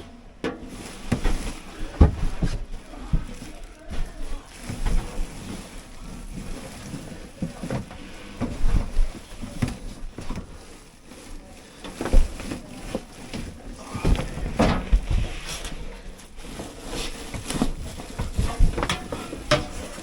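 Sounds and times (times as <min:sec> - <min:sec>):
irregular knocks and rubbing: 0:11.8 - 0:20.0.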